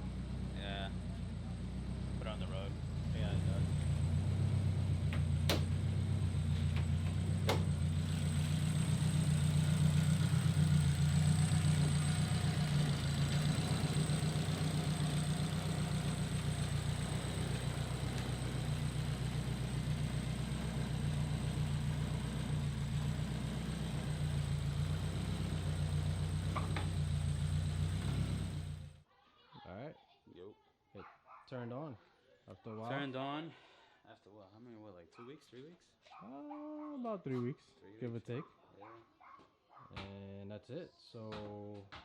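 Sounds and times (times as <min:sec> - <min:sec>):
race car engine idling: 0:00.0 - 0:29.0.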